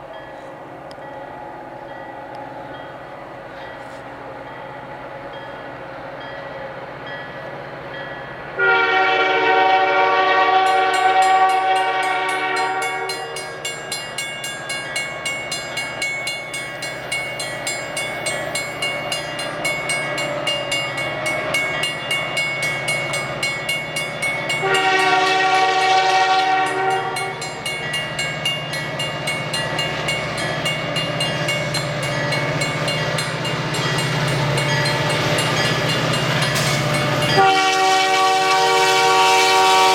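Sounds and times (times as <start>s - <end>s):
locomotive engine droning: 0.0s - 39.9s
locomotive horn blasts: 8.6s - 13.5s, 24.5s - 27.6s, 37.0s - 39.9s
train wheels clicking on rails: 10.4s - 39.9s.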